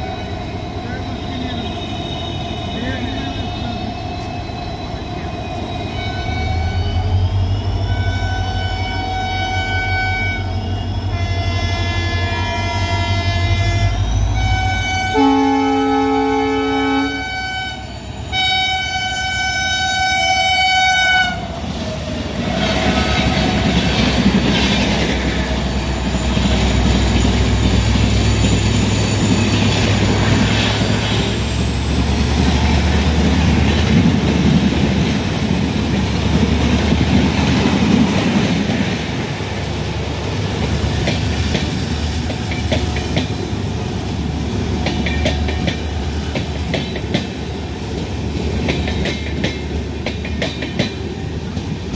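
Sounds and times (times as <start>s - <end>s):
train rumbling past: 0.0s - 51.9s
locomotive horn: 5.9s - 7.2s, 7.9s - 21.6s
wheels clicking over rail joints: 40.6s - 44.0s, 44.7s - 51.9s.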